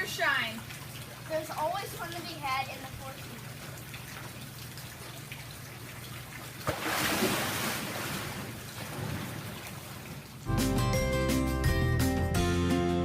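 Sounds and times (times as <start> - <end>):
rushing water: 0.0 - 10.5
music: 10.5 - 13.0.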